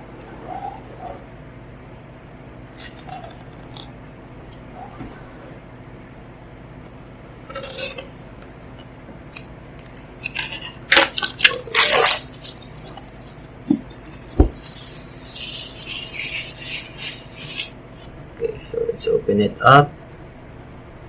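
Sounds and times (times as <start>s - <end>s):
packaging crackling and rustling: 9.9s - 17.7s.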